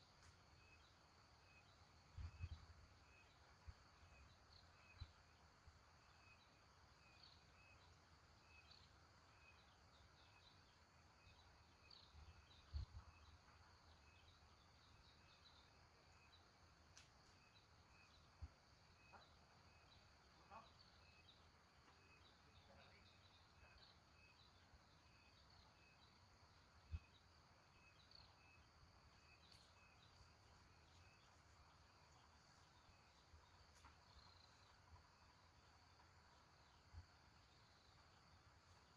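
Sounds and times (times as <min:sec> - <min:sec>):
small high chirps: 0:11.2 - 0:38.9.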